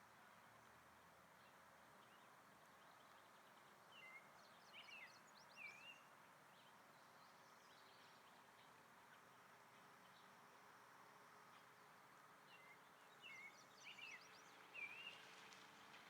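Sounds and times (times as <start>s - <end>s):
songbird singing: 1.4s - 8.8s, 12.5s - 15.4s.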